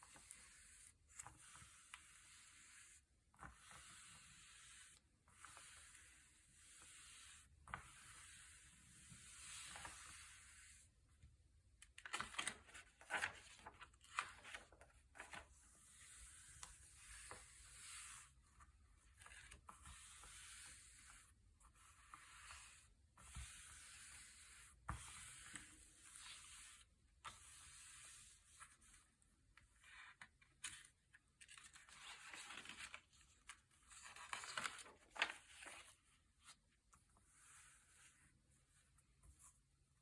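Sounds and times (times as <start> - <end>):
paper pages turning: 12.0 - 15.5, 30.1 - 36.6.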